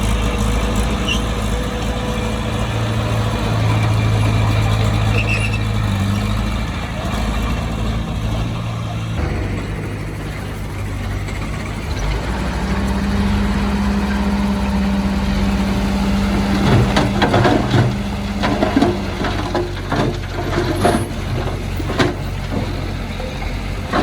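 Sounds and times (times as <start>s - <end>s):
bulldozer diesel engine running: 0.0s - 24.0s
knocks and clanks: 7.1s - 24.0s.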